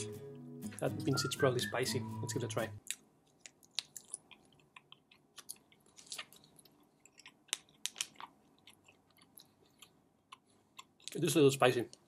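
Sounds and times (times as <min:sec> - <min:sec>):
person chewing with mouth clicks: 0:02.8 - 0:11.2.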